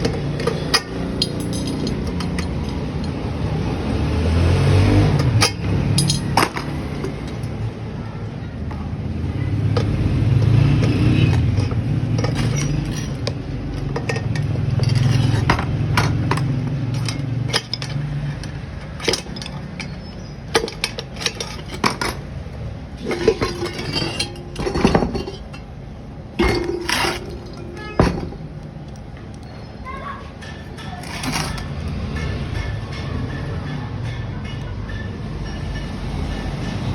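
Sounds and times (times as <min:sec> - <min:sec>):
metal tools clinking: 0:00.0 - 0:03.6, 0:05.2 - 0:07.6, 0:09.8 - 0:29.6, 0:30.3 - 0:33.4.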